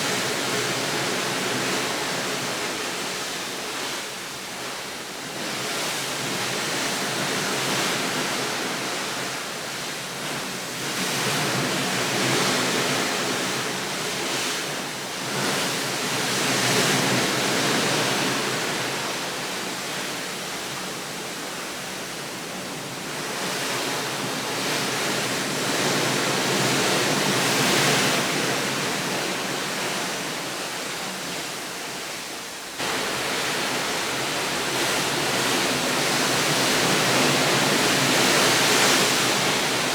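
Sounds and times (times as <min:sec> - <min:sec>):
rushing water: 0:23.1 - 0:39.9.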